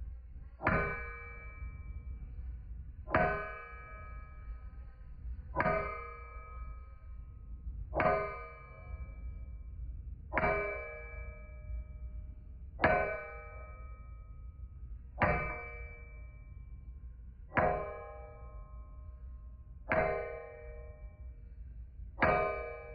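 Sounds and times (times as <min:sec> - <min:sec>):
hammer striking steel on anvil: 0:03.1 - 0:04.4.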